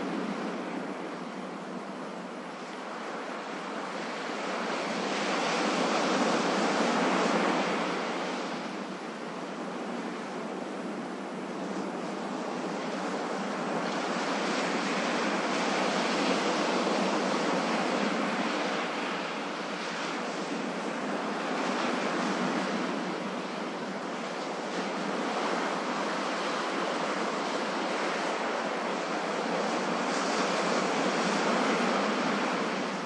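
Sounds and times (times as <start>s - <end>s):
ocean surf washing on shore: 0.0s - 33.0s.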